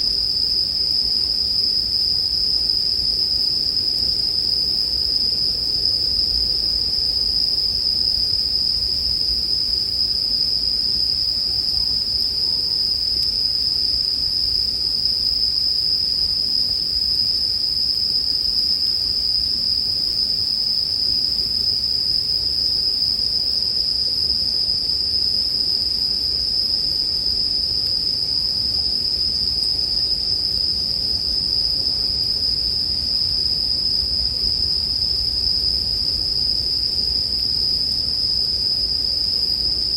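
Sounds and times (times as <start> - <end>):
crickets ringing chorus: 0.0 - 39.9.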